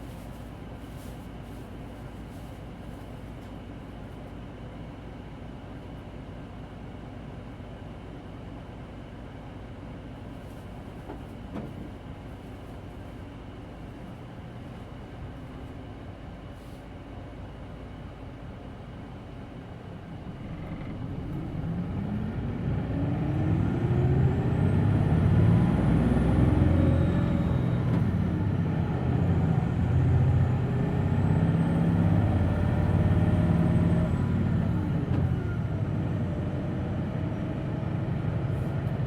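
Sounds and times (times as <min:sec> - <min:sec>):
bus engine accelerating: 0:17.4 - 0:39.0.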